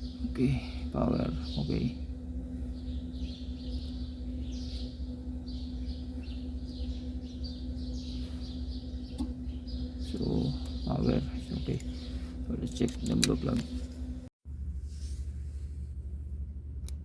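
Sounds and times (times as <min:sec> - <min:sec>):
small birds chirping: 0:00.0 - 0:14.1
steady low hum: 0:00.0 - 0:17.0.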